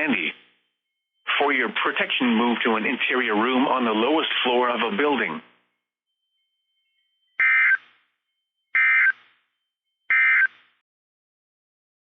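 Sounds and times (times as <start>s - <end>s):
buzzing digital data chirps: 6.1s - 9.4s, 10.1s - 10.7s.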